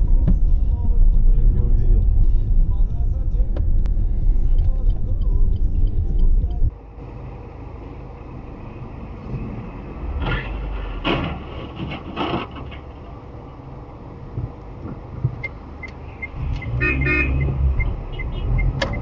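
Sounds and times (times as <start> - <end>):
loud low road rumble: 0.0 - 19.0
traffic noise: 0.0 - 19.0.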